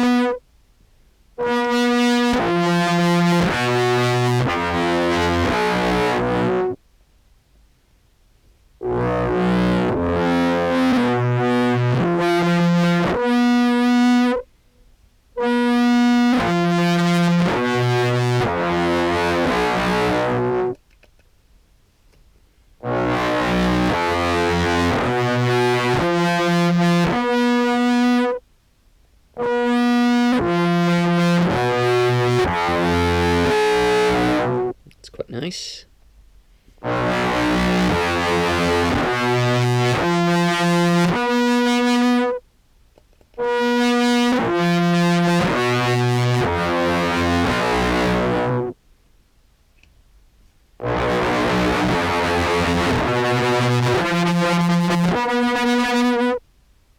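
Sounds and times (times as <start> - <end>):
distorted buzzy clarinet notes: 0.0 - 0.4, 1.4 - 6.8, 8.8 - 14.5, 15.3 - 20.8, 22.8 - 28.4, 29.3 - 34.8, 36.8 - 42.4, 43.3 - 48.8, 50.8 - 56.4.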